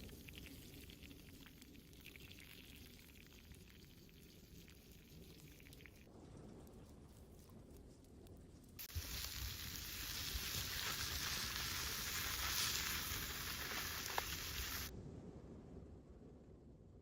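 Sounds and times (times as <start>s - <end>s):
steady sizzling hiss: 8.8s - 14.9s.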